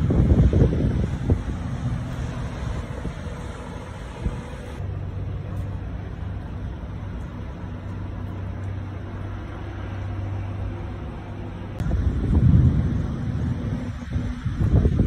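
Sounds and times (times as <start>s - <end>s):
low steady hum: 0.0s - 15.0s
steady rain falling: 11.8s - 15.0s.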